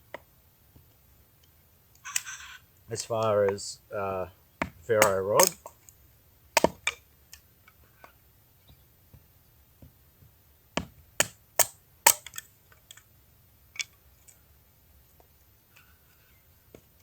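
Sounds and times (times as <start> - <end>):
axe chopping wood: 4.6 - 5.6, 6.6 - 7.0.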